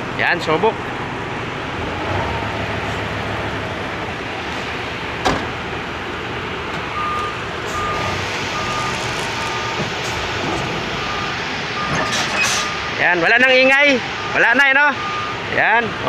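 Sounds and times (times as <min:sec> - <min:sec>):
diesel truck engine running: 0:00.0 - 0:16.0
reversing alarm beeping: 0:06.9 - 0:15.6.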